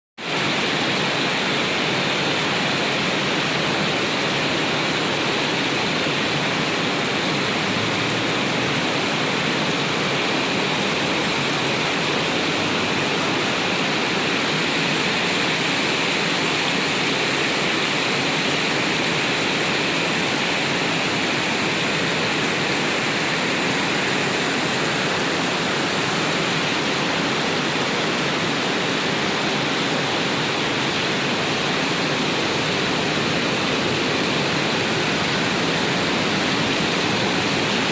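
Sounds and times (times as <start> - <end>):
heavy rain pouring: 0.2 - 37.9.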